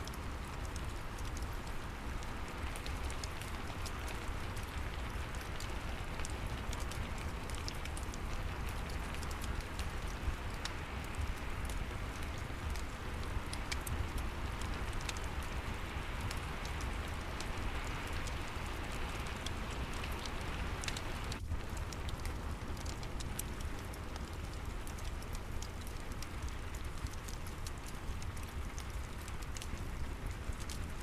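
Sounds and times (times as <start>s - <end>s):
fireplace crackling: 0.0s - 31.0s
rain falling: 0.0s - 31.0s.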